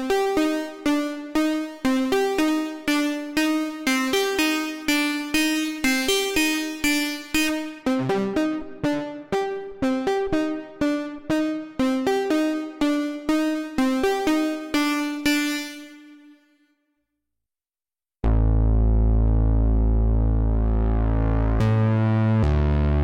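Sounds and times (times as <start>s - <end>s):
synthesizer plucky notes: 0.0s - 16.4s.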